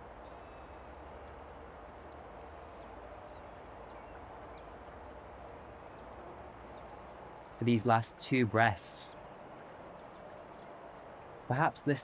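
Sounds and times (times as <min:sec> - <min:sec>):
bird chirping: 0:00.2 - 0:09.4.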